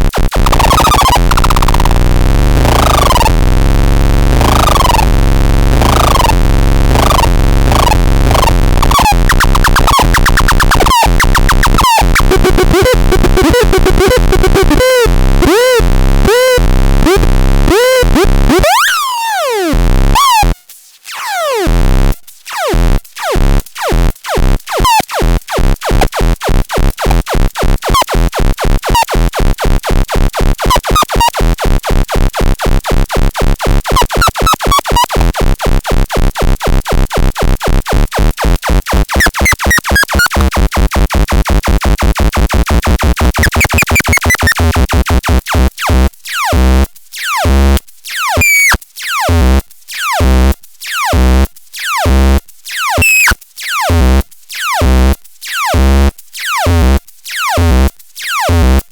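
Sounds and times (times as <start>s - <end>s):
synthesizer pulses sliding in pitch: 5.7s - 18.0s, 43.4s - 44.8s, 48.4s - 48.8s.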